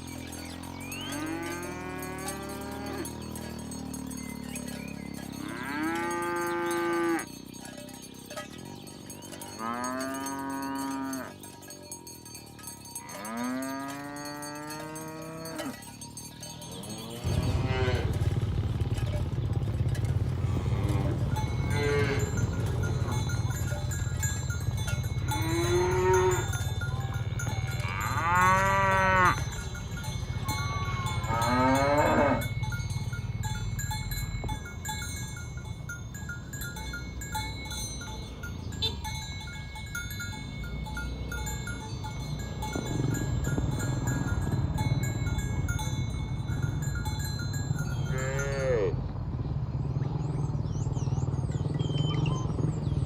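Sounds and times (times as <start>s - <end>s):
cows mooing: 0.0s - 49.1s.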